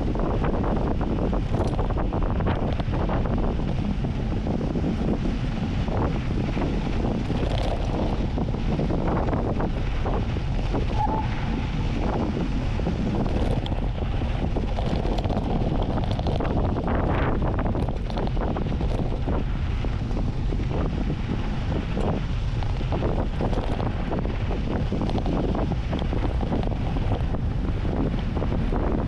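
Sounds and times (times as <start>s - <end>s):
bike knocking and rattling: 0.0s - 29.0s
wind buffeting microphone: 0.0s - 29.0s.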